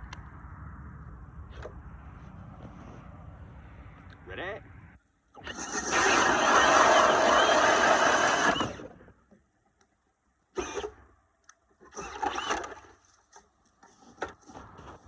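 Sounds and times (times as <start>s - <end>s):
cordless drill spinning ice auger: 5.4s - 9.0s, 10.6s - 11.0s, 11.8s - 12.9s.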